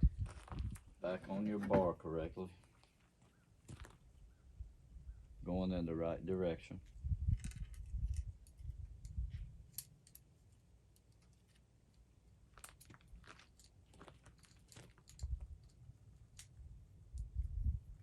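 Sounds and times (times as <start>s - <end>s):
saw chain links clicking and rattling: 12.6s - 15.8s.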